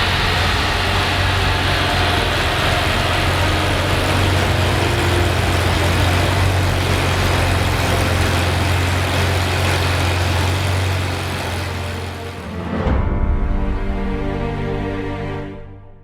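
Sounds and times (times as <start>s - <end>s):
sports car engine idling: 0.0s - 12.4s.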